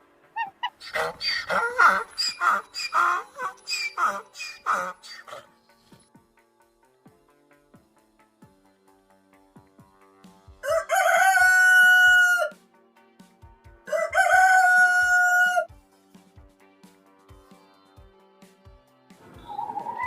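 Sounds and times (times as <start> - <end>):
faint background music: 0.0 - 20.0
rooster crowing: 10.6 - 12.6, 13.9 - 15.7.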